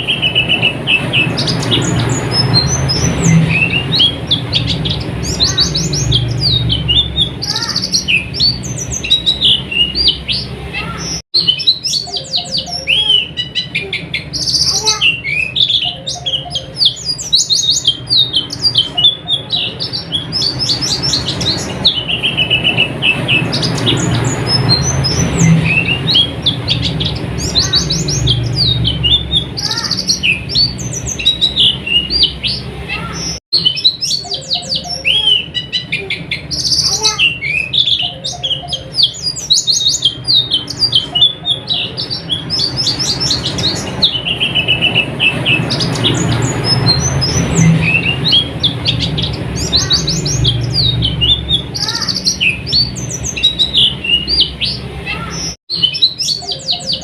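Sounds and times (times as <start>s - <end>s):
low background rumble: 0.0s - 11.2s, 11.8s - 33.4s
birds chirping and trilling: 0.0s - 57.0s.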